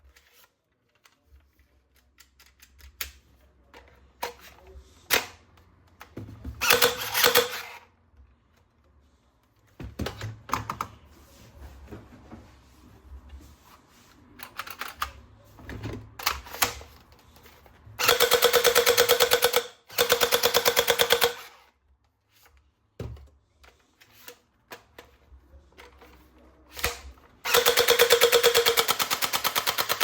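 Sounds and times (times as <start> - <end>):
toy machine gun firing: 6.6 - 7.8, 18.0 - 21.6, 27.4 - 30.0.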